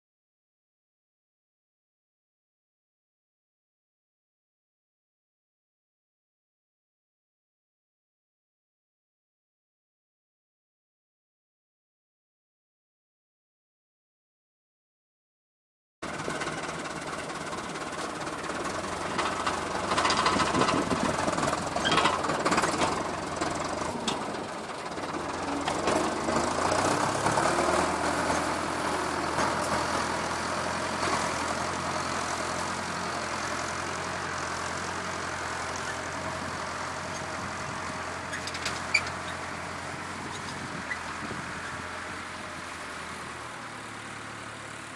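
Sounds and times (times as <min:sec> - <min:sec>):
tractor engine running: 0:16.0 - 0:44.9.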